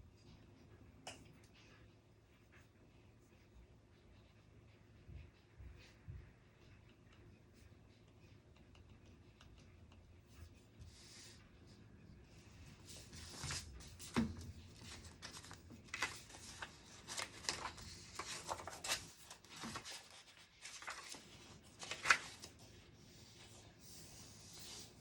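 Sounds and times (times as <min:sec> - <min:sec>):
paper rustling: 0:12.8 - 0:25.0.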